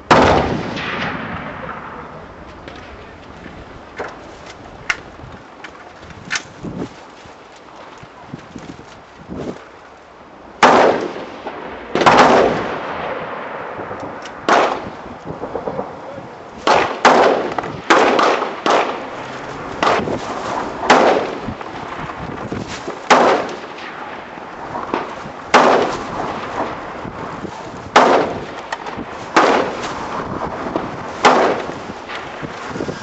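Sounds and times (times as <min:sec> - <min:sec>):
steady background noise: 0:00.0 - 0:33.0
rifle shots with ringing echo: 0:00.1 - 0:02.4, 0:10.6 - 0:15.8, 0:16.6 - 0:22.2, 0:22.9 - 0:27.0, 0:27.9 - 0:29.9, 0:30.7 - 0:32.4.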